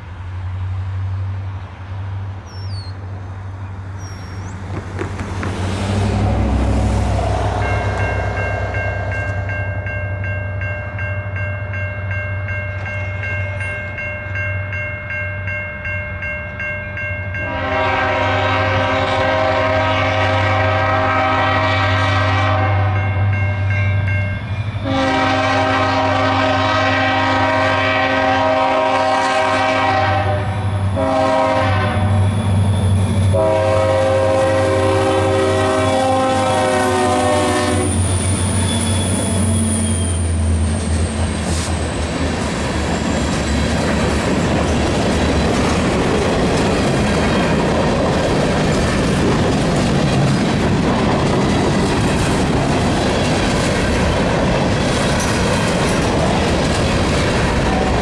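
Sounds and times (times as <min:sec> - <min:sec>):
diesel engines droning: 0:00.0 - 0:11.4, 0:17.4 - 0:58.0
train wheels rumbling on rails: 0:00.0 - 0:58.0
locomotive horn blasts: 0:17.4 - 0:23.7, 0:24.7 - 0:32.4, 0:33.2 - 0:38.1.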